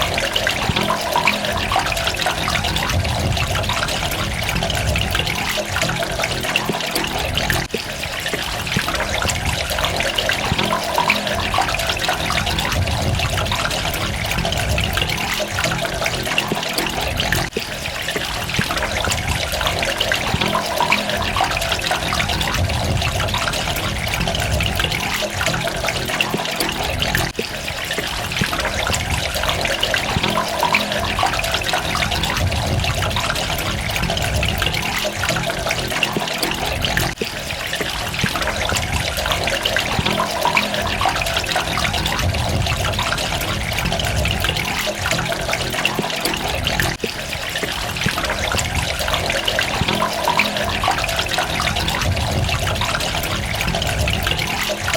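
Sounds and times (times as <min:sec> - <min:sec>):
trickling water: 0:00.0 - 0:54.9.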